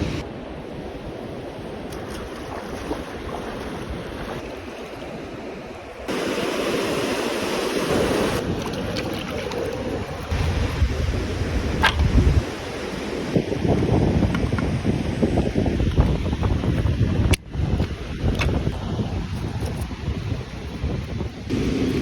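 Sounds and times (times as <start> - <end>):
wind on microphone: 0.0 - 5.3, 6.0 - 22.0
water rushing: 0.0 - 13.8, 21.5 - 22.0.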